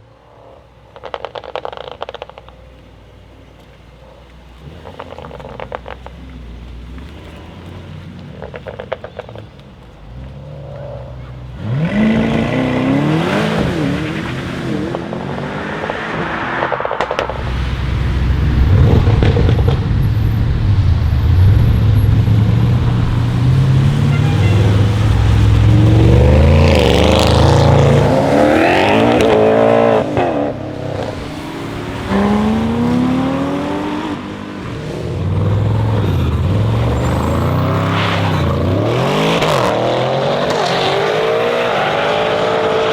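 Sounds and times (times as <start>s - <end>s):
car engine accelerating hard: 4.4s - 42.9s.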